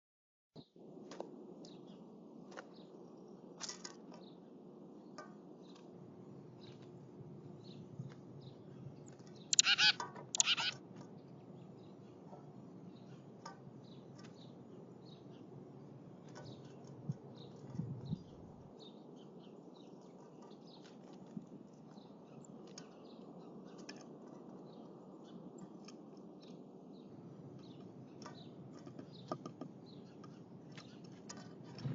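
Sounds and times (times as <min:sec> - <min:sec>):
bird chips and ticks: 0:07.6 - 0:12.3, 0:16.2 - 0:31.9
birds harsh buzzy calls: 0:09.5 - 0:10.8.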